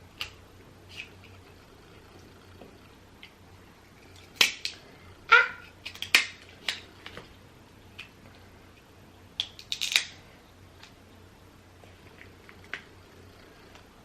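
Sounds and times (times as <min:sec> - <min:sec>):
shells cracking and snapping: 0:04.1 - 0:04.8, 0:05.7 - 0:07.3, 0:09.3 - 0:10.2.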